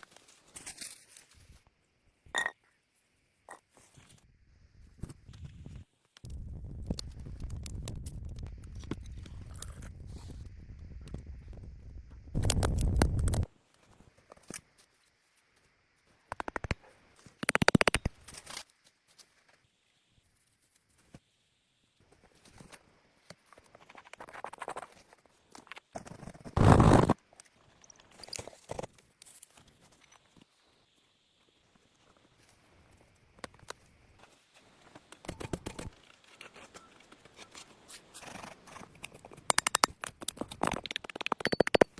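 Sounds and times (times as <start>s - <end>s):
branches scraping and crunching: 0.0s - 1.6s
quick run of clicks: 39.5s - 41.9s.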